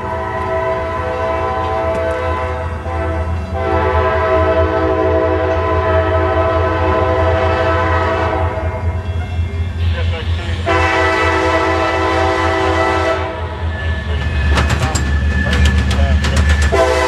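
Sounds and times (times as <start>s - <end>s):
locomotive air horn blasts: 0.0s - 9.0s, 10.6s - 13.6s, 16.7s - 17.0s.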